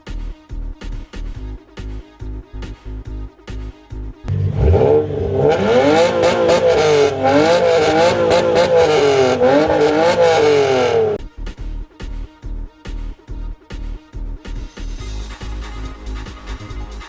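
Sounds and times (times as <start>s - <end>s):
car engine revving: 4.3s - 11.2s.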